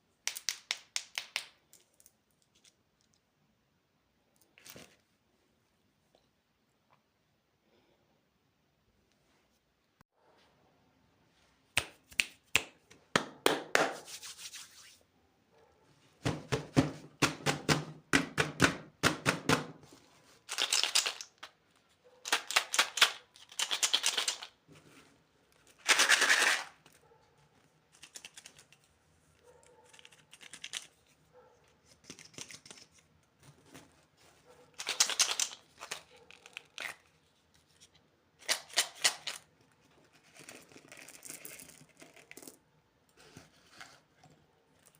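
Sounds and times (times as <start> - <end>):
plastic wrappers crinkling and tearing: 34.8 - 37.3.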